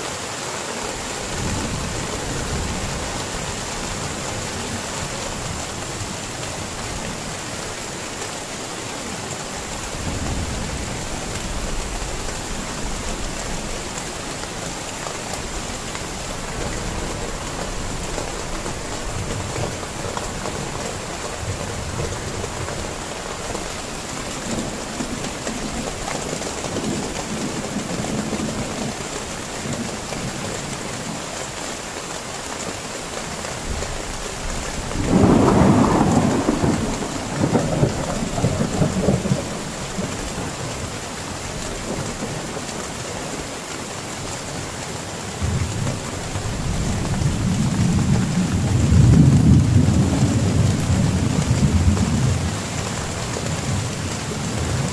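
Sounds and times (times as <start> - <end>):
heavy rain falling: 0.0 - 54.9
thunder clap and rumble: 34.8 - 40.1, 45.4 - 54.9.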